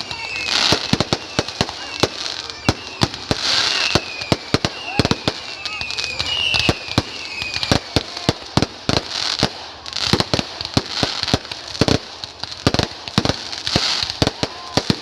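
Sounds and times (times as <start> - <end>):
firework whistle: 0.0 - 12.0
crackling firework hiss: 0.0 - 15.0
firework bangs: 0.0 - 15.0.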